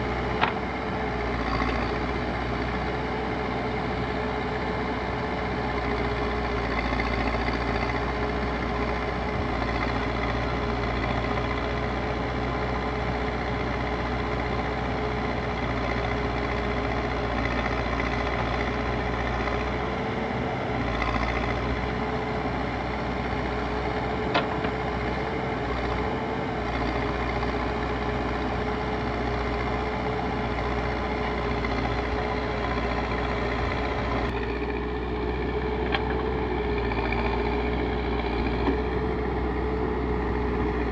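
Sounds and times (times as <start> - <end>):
diesel engine hum: 0.0 - 40.9.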